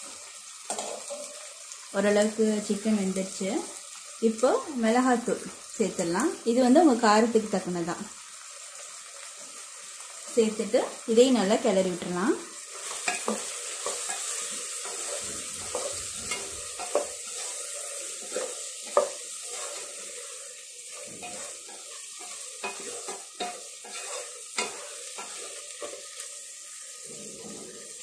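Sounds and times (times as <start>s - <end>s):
chicken sizzling in a pot: 0.0s - 28.0s
spatula scraping and knocking pot: 12.8s - 20.1s, 20.9s - 26.2s.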